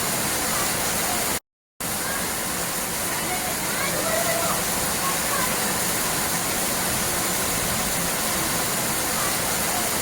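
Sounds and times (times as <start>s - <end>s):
falling water rushing: 0.0s - 10.0s.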